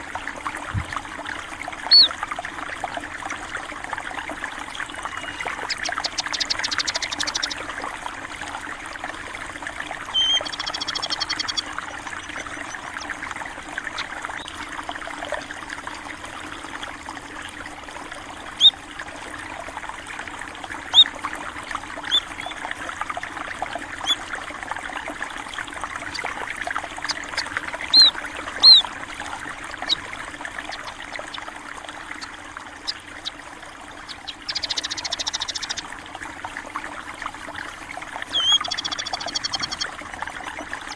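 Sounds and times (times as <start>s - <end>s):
water trickling: 0.0s - 40.9s
small birds chirping: 1.8s - 2.2s, 4.8s - 7.6s, 10.1s - 14.5s, 20.9s - 21.1s, 22.0s - 22.6s, 24.0s - 24.3s, 26.0s - 33.4s, 34.0s - 35.8s, 38.3s - 39.9s.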